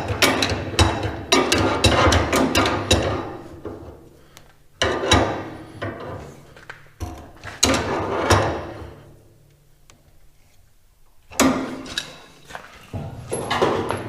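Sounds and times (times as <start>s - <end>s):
loud clattering knocks: 0.0s - 3.8s.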